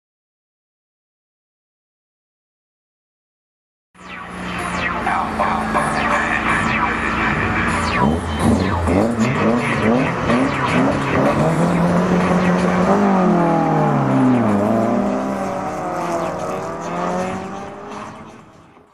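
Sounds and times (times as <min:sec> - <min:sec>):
car engine revving: 0:04.0 - 0:18.9
car accelerating away: 0:04.3 - 0:18.9.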